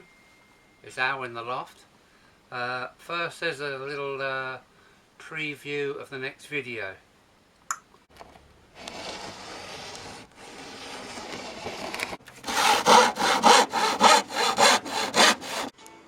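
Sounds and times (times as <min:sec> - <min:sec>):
hand saw cutting wood: 0:08.8 - 0:15.7.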